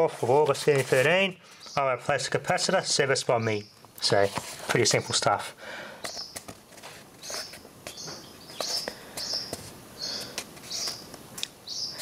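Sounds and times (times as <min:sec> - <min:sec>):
paper rustling: 0:00.0 - 0:01.3, 0:04.0 - 0:05.0, 0:06.1 - 0:11.1
small bird chirping: 0:01.6 - 0:01.9, 0:06.1 - 0:06.5, 0:07.2 - 0:12.0
taps of handled pages: 0:06.0 - 0:09.7.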